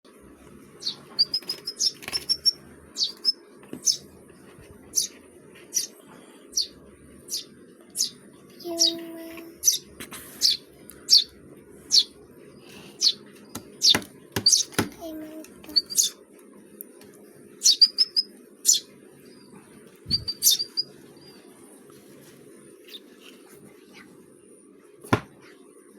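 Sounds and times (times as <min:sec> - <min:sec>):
small birds chirping: 0:00.6 - 0:16.2, 0:17.6 - 0:21.9, 0:22.6 - 0:24.0
high repeated bird notes: 0:00.8 - 0:04.1, 0:04.9 - 0:12.2, 0:13.0 - 0:16.2, 0:17.6 - 0:18.9, 0:20.1 - 0:20.9.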